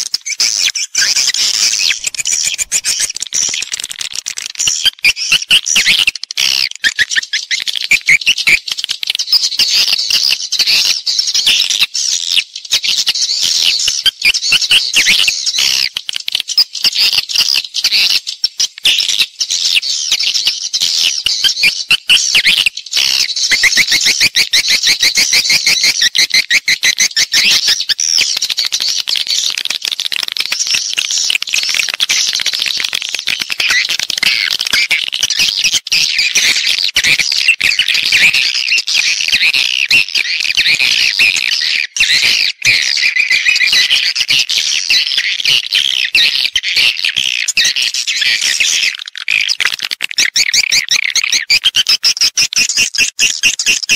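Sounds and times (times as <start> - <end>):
swiftlets twittering: 1.0 - 3.7.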